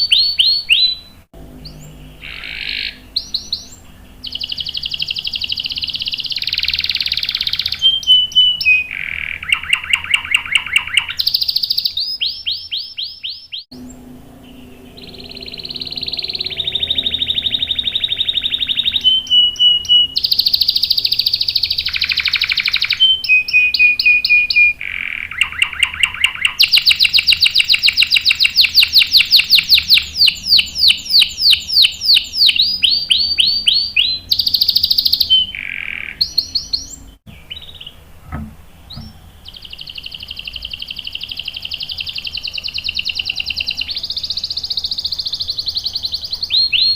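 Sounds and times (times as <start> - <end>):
canary singing trills: 0.0 - 46.9.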